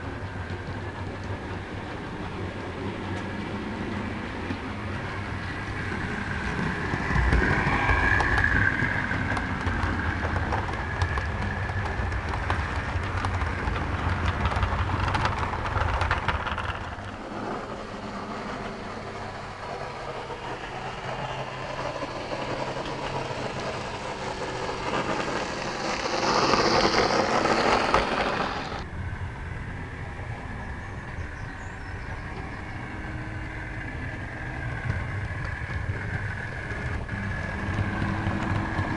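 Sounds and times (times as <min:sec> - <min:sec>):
clicking over rail joints: 0:00.0 - 0:28.9, 0:31.1 - 0:38.9
model train motor whir: 0:21.7 - 0:28.8.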